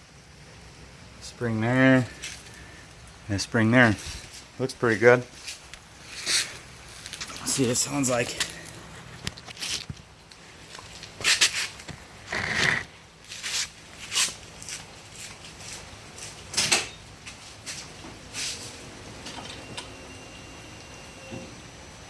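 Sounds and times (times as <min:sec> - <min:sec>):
rustles: 0:01.7 - 0:19.7.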